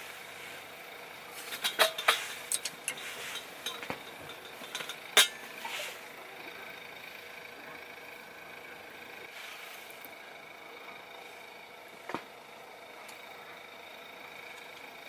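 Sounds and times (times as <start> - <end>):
hard objects knocking and clinking: 1.6 - 5.4.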